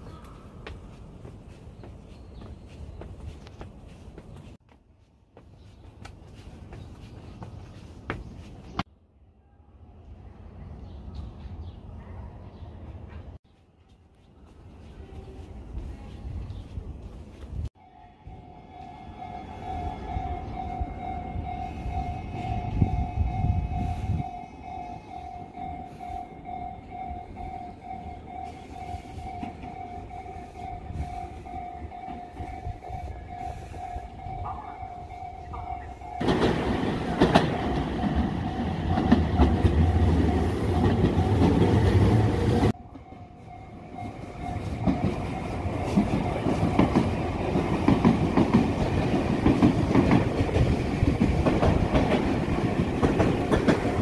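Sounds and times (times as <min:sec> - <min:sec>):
train wheel and track rumble: 0:14.4 - 0:54.0
level-crossing electronic bell: 0:17.8 - 0:36.8, 0:42.6 - 0:47.6.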